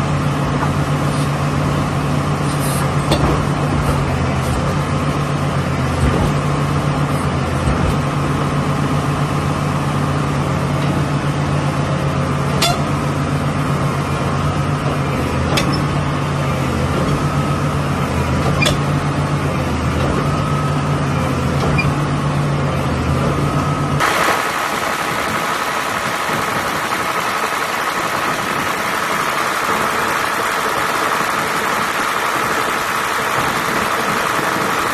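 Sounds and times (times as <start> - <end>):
excavator diesel engine running: 0.0 - 34.9
higher hissy running sound: 24.0 - 34.9.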